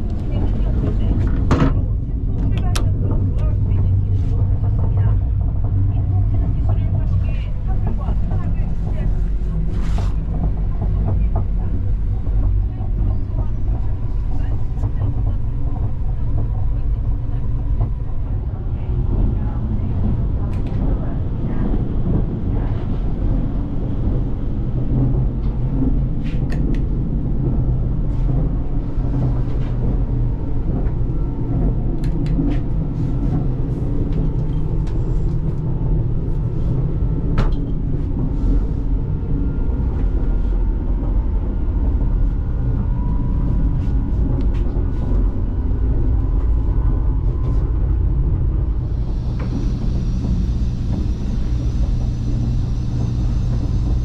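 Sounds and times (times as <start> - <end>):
train ride rumble: 0.0 - 54.0.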